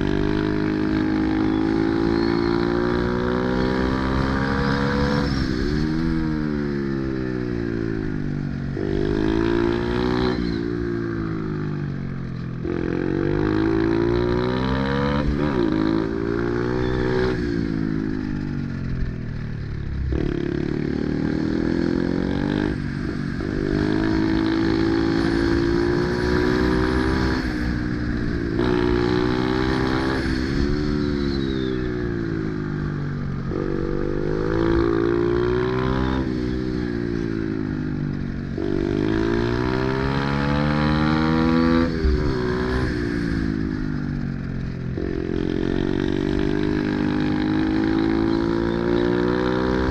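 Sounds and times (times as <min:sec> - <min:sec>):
pit bike engine revving: 0:19.9 - 0:32.6, 0:38.1 - 0:49.9.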